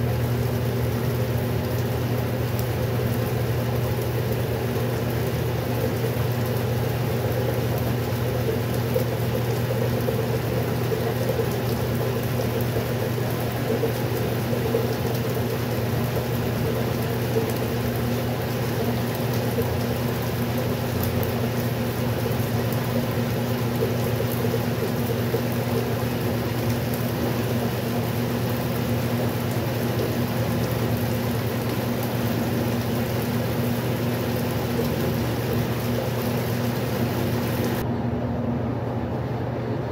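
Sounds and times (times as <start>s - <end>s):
water splashing: 0.0s - 37.8s
washing machine motor hum: 0.0s - 39.9s.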